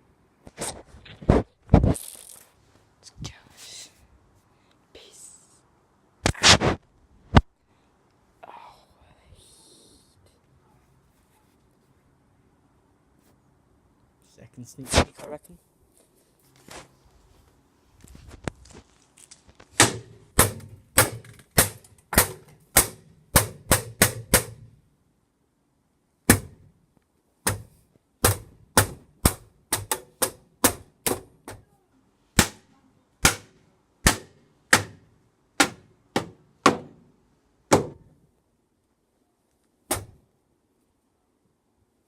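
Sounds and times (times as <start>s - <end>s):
pole whacking cardboard box: 19.7s - 24.6s, 27.4s - 31.6s, 35.6s - 37.0s, 37.7s - 38.0s, 39.9s - 40.2s.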